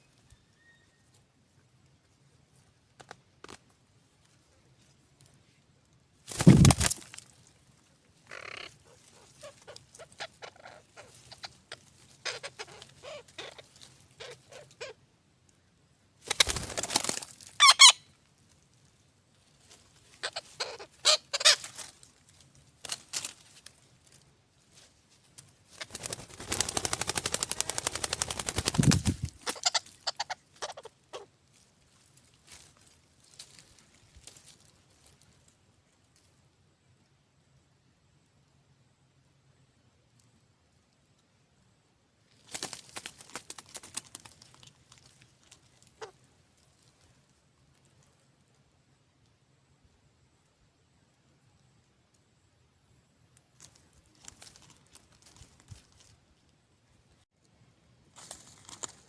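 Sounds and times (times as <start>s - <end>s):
bird calling: 8.3s - 15.0s, 17.6s - 18.1s, 20.1s - 21.8s, 25.8s - 31.3s.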